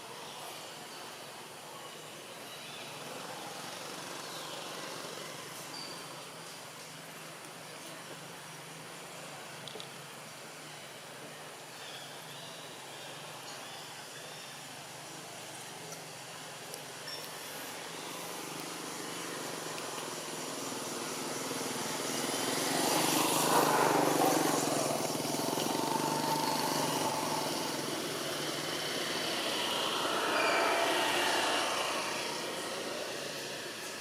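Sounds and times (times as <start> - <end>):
vehicles passing: 16.6 - 34.0.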